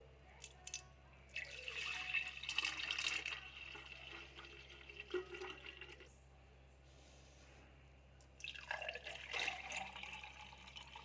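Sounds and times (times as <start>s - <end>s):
liquid pouring into container: 1.3s - 6.1s, 8.4s - 11.0s.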